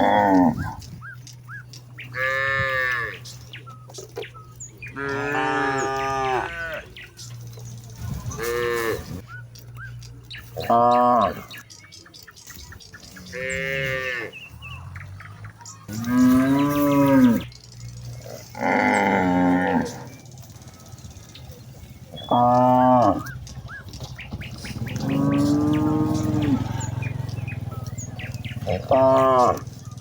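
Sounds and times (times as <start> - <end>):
cows mooing: 0.0 - 1.3, 2.0 - 3.5, 4.8 - 7.1, 8.2 - 9.2, 10.4 - 11.6, 13.1 - 14.6, 15.9 - 17.5, 18.1 - 29.8.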